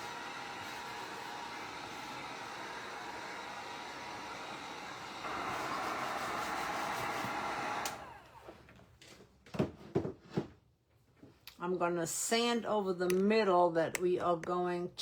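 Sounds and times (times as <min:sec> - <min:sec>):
handheld electric dryer blowing: 0:00.0 - 0:08.7.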